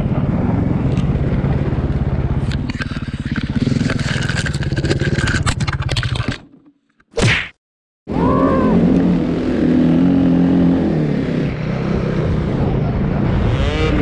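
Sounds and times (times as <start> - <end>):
snowbike engine running: 0.0 - 5.5
scraping and clattering: 2.6 - 6.8.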